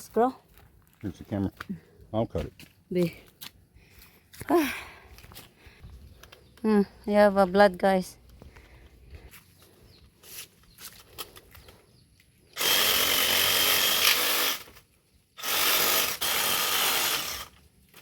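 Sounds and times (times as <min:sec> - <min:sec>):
power tool cutting branches: 0:12.4 - 0:18.0.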